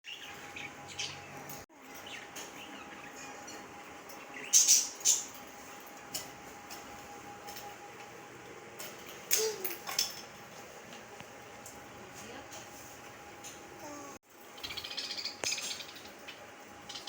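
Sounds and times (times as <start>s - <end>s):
budgerigars chirping: 0.1s - 1.4s, 4.4s - 5.3s, 14.6s - 17.0s.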